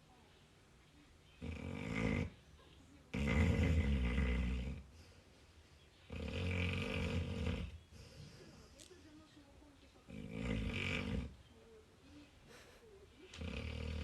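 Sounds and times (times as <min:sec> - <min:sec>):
dog snoring loudly: 0:01.4 - 0:02.3, 0:03.1 - 0:04.8, 0:06.1 - 0:07.8, 0:10.1 - 0:11.4, 0:13.4 - 0:14.0.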